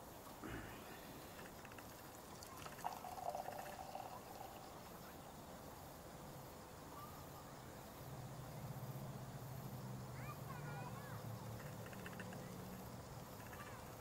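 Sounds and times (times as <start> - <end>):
liquid pouring into container: 1.4 - 5.0.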